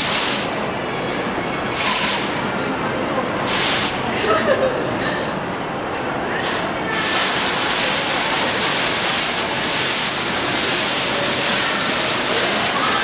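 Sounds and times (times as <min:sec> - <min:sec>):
falling water rushing: 0:06.4 - 0:13.0.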